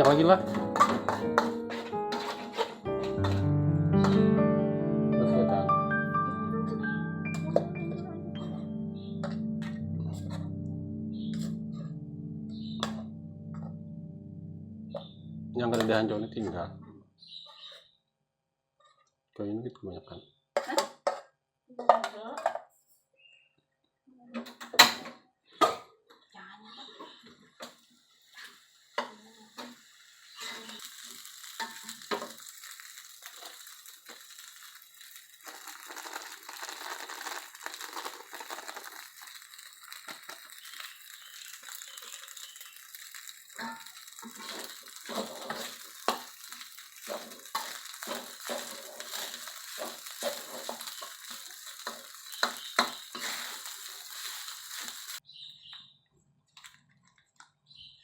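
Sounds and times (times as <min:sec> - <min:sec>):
metal spatula scraping a pan: 0:00.0 - 0:04.2, 0:28.3 - 0:35.2, 0:39.3 - 0:55.2
food sizzling in hot oil: 0:00.0 - 0:04.3, 0:27.6 - 0:55.2.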